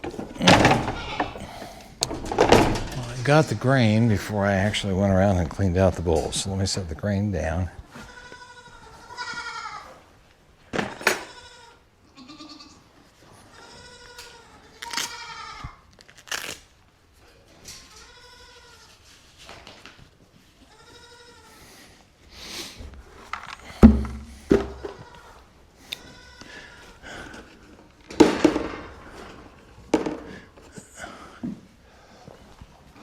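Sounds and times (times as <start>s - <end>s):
goats and sheep bleating: 0.1s - 1.9s, 7.9s - 10.1s, 11.0s - 15.9s, 17.9s - 19.0s, 20.6s - 21.6s, 24.5s - 27.6s
loud thump: 23.8s - 25.0s
sharp knocks: 23.8s - 25.0s.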